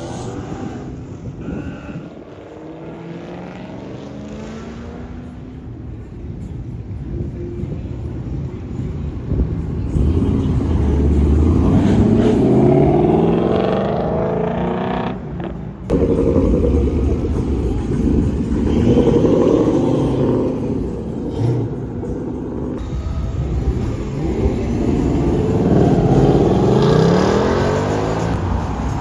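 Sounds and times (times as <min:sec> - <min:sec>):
car engine accelerating hard: 0:09.9 - 0:15.2, 0:15.9 - 0:29.0.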